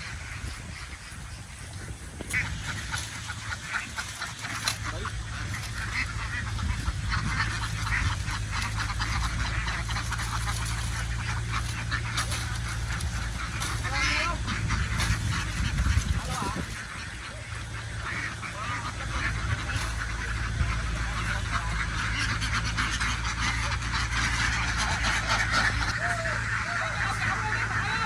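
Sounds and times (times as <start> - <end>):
ducks quacking: 0.0 - 28.0
steady low hum: 0.0 - 28.0.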